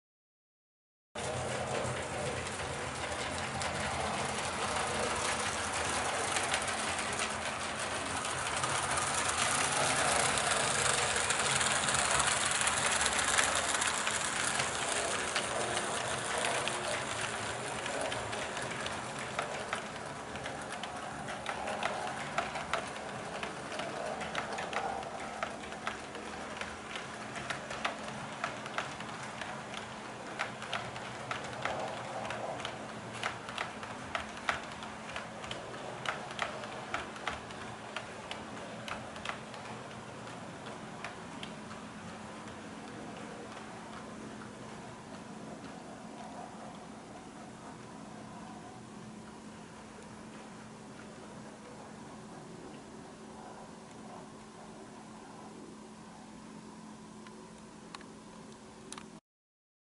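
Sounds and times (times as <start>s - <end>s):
sharp clicks from wheels: 1.2s - 52.0s
model train rolling hiss: 1.3s - 24.4s.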